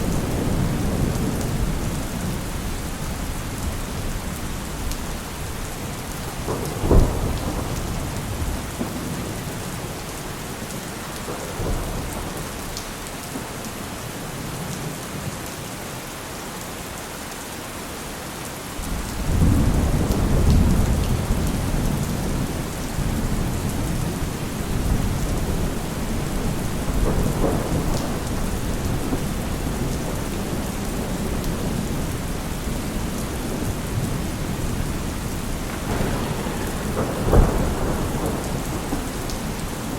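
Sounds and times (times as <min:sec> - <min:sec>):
deep roll of thunder: 0:00.0 - 0:04.8, 0:05.4 - 0:10.0, 0:18.8 - 0:39.9
thunderclap: 0:00.0 - 0:04.8, 0:06.2 - 0:10.0, 0:18.8 - 0:39.9
heavy rain: 0:00.0 - 0:39.9.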